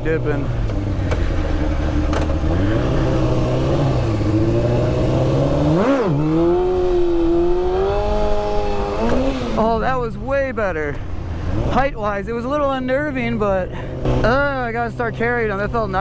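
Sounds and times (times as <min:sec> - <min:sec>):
motorcycle engine pulling hard: 0:00.0 - 0:10.0, 0:13.7 - 0:15.3.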